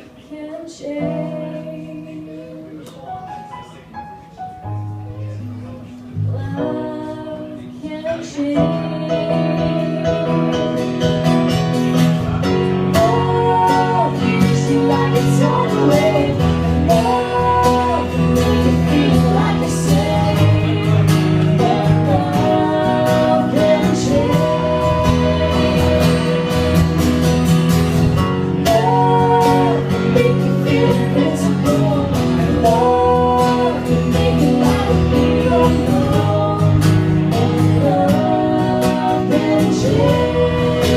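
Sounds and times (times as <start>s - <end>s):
acoustic guitar: 0.0s - 40.9s
person singing: 6.2s - 11.0s, 12.7s - 27.3s, 28.4s - 40.9s.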